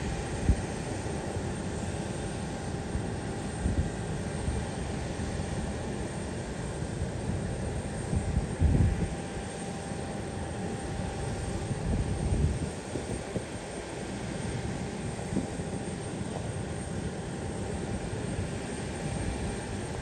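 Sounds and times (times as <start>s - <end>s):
aircraft engine noise: 0.0s - 20.0s
wind buffeting microphone: 8.0s - 9.4s, 11.5s - 13.6s.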